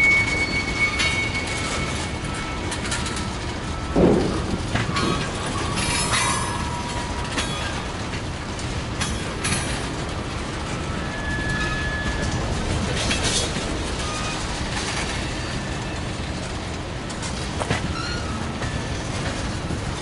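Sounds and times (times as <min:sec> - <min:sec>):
wheel flange squeals: 0:00.0 - 0:04.0, 0:04.8 - 0:07.9, 0:10.7 - 0:16.2, 0:17.7 - 0:19.4
train wheels clicking over rail joints: 0:00.0 - 0:20.0.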